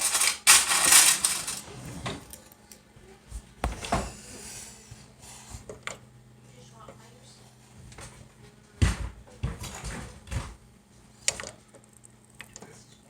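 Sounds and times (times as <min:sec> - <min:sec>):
rustling scraping clatter: 0:00.0 - 0:02.3.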